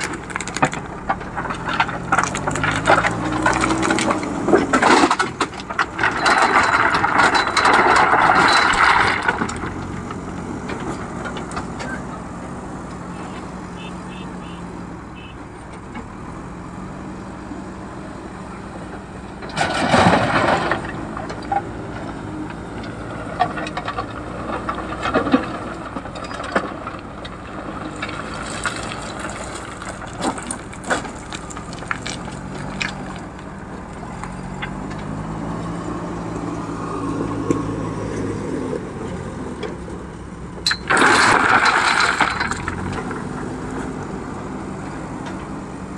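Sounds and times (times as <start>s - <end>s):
diesel engine running under work: 0.0s - 45.9s
stone tipped into truck: 19.5s - 21.7s, 40.6s - 43.2s.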